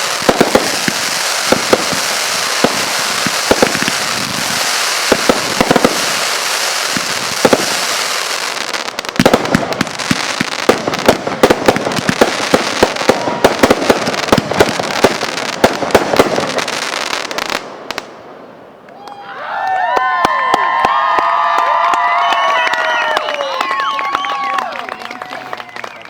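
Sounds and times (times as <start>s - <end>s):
fireworks crackling hiss: 0.0s - 18.1s
fireworks sharp bangs: 0.0s - 18.5s.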